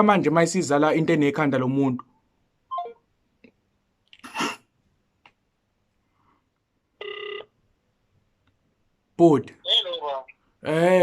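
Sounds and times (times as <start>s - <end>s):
sneeze-like burst of breath: 4.2s - 4.7s.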